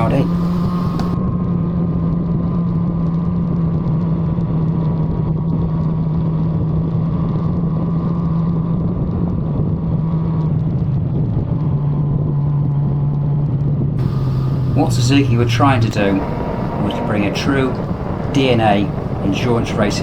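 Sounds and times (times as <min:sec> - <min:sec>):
motorcycle engine running: 0:00.0 - 0:01.2, 0:14.0 - 0:20.0
steady rush of noise: 0:00.0 - 0:01.2, 0:14.0 - 0:20.0.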